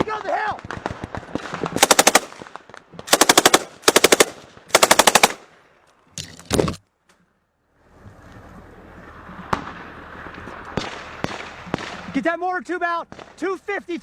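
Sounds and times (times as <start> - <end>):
automatic machine-gun fire: 1.8 - 2.4, 3.1 - 5.5.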